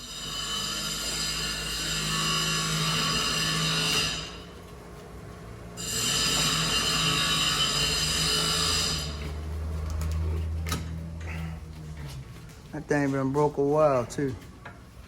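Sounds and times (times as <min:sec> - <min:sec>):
power tool whining: 0:05.8 - 0:12.1.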